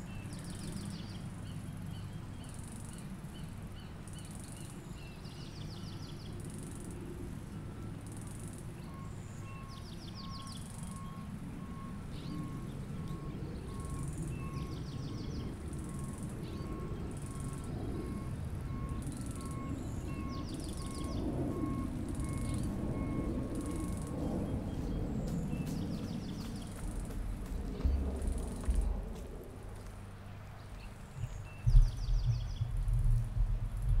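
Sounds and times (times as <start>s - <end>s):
steady low rumble: 4.6s - 34.0s
birds chirping: 8.7s - 33.9s.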